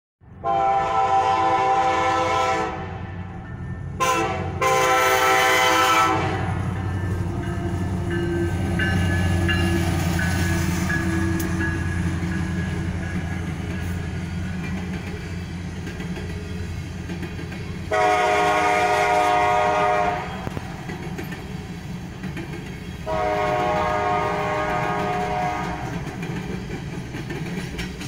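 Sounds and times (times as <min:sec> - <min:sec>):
train cars rumbling: 0:00.2 - 0:28.0
locomotive horn blasts: 0:00.4 - 0:03.0, 0:04.0 - 0:06.9, 0:17.9 - 0:20.6, 0:23.0 - 0:26.0.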